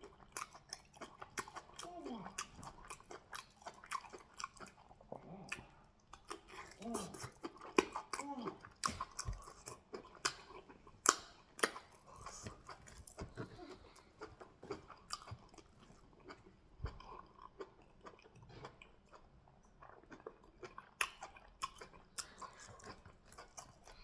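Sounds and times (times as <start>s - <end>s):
wet chewing and smacking: 0.0s - 24.0s.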